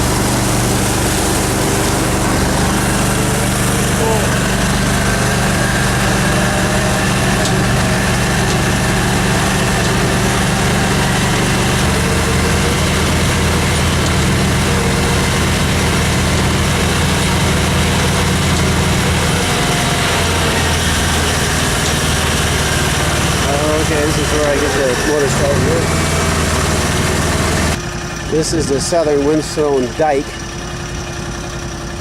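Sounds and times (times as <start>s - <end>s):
outboard motor running: 0.0s - 32.0s.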